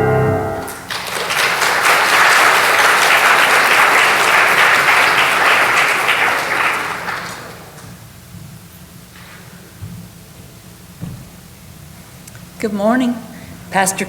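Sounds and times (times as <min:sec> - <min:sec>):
piano and organ piece: 0:00.0 - 0:03.4
congregation applauding: 0:00.0 - 0:08.0.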